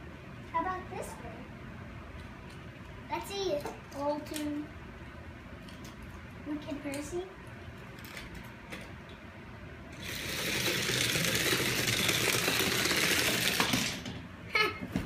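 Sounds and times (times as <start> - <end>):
toy train rattling down track: 10.0 - 14.1.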